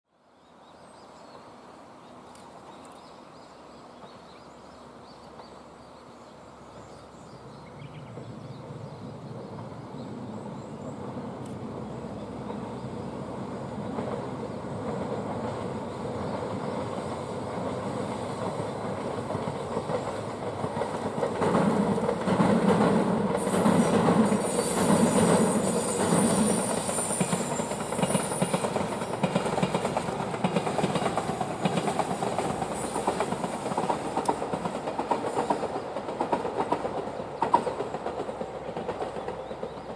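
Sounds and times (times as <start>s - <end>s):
diesel train passing: 0.2s - 39.9s
wheels clacking over rail joints: 13.8s - 39.9s.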